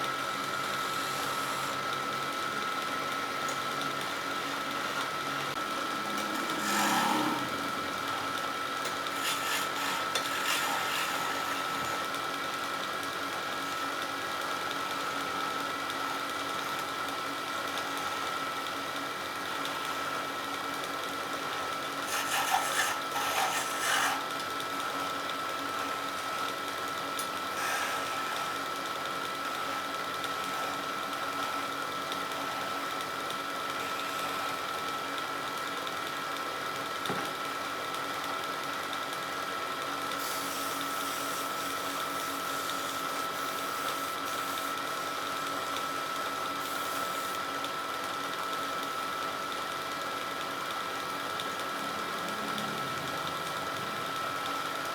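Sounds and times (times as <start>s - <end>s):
wood lathe motor whine: 0.0s - 54.9s
turning tool scraping wood: 6.2s - 7.6s, 8.8s - 12.1s, 22.0s - 24.4s, 27.5s - 28.6s.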